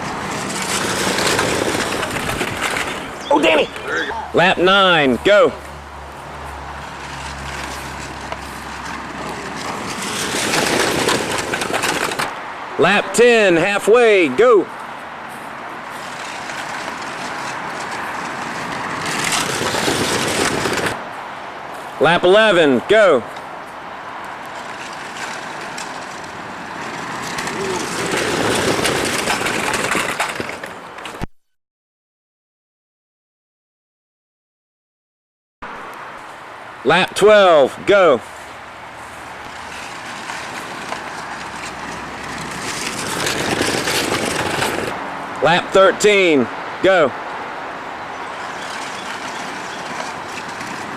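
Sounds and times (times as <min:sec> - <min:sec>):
model cars rolling on track: 0:00.0 - 0:05.4, 0:06.7 - 0:14.1, 0:15.8 - 0:21.0, 0:24.2 - 0:31.2, 0:38.3 - 0:46.5, 0:47.9 - 0:50.9.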